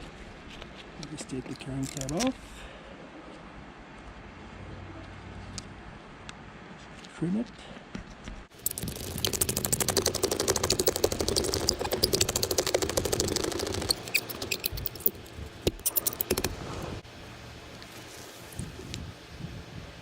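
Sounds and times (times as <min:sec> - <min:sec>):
razor blade scraping glass: 0:08.6 - 0:17.0.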